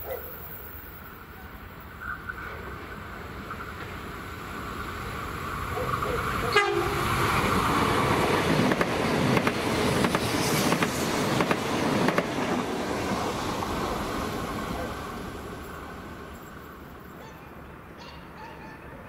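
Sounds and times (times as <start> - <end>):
train passing: 0.0 - 19.0
train wheels clicking over rail joints: 7.7 - 12.8.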